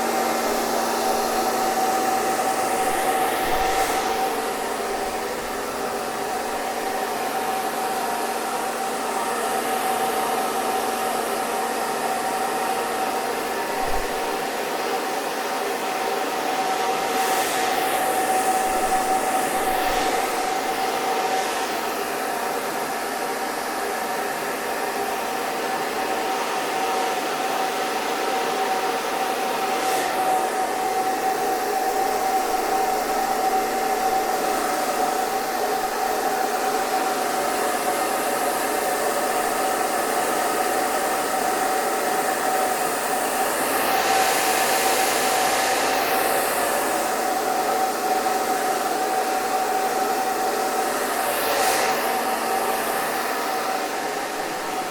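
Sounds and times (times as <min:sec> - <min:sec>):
hair dryer blowing: 0:00.0 - 0:54.9.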